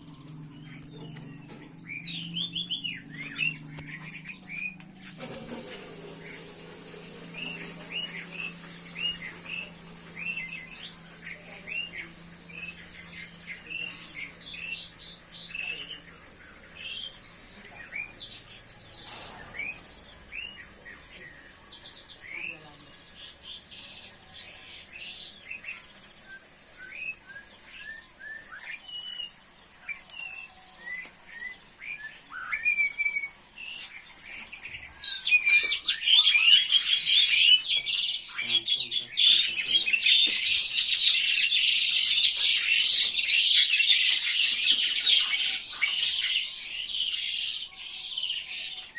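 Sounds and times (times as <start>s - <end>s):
small birds chirping: 0.0s - 48.9s
dense chatter of rapid chirps: 7.6s - 27.2s, 35.0s - 48.9s.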